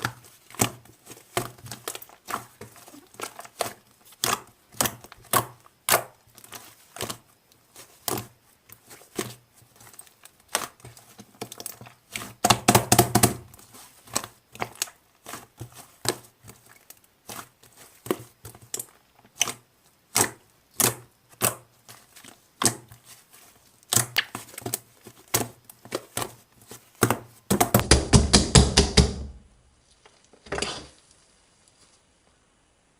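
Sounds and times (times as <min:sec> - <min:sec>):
slime squished by hand: 0:00.0 - 0:27.9
wet pops and clicks: 0:23.9 - 0:25.5.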